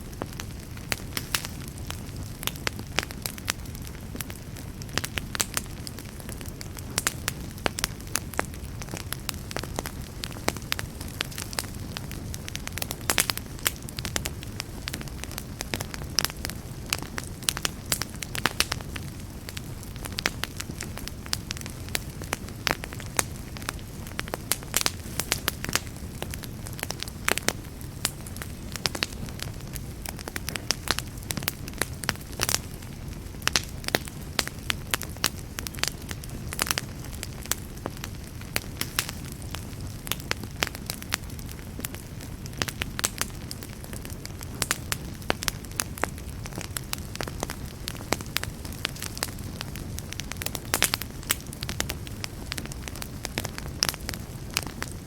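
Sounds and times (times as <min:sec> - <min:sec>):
campfire burning with crackles: 0:00.0 - 0:55.0.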